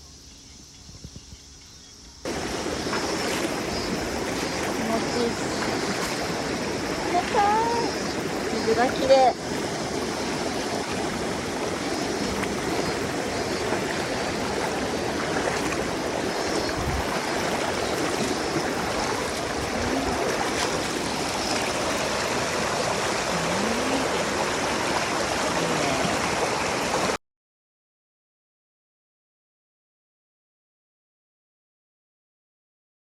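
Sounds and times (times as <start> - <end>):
stream flowing: 2.2 - 27.2.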